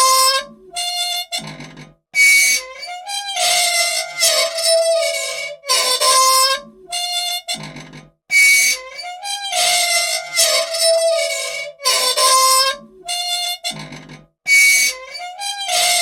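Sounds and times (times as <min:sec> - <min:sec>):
old machine squeaking: 0:00.0 - 0:16.0.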